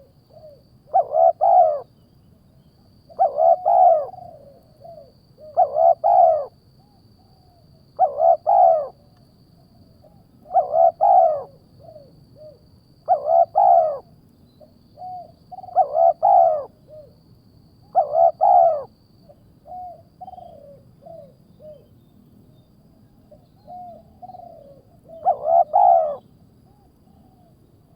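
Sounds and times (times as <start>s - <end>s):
bird calls: 3.2s - 6.5s, 10.5s - 17.1s, 17.9s - 18.9s, 23.3s - 27.5s.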